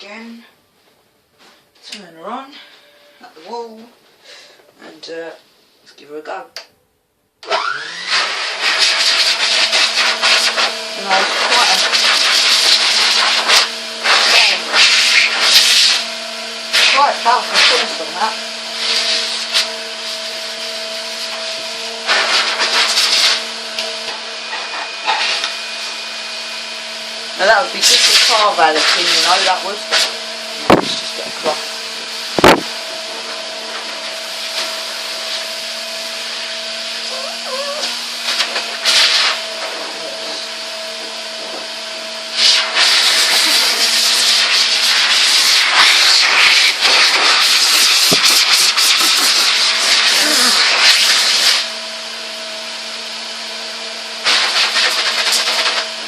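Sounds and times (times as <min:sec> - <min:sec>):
vacuum cleaner motor humming: 0:07.4 - 0:56.0
air blowing through hose: 0:32.3 - 0:32.8, 0:42.3 - 0:51.6.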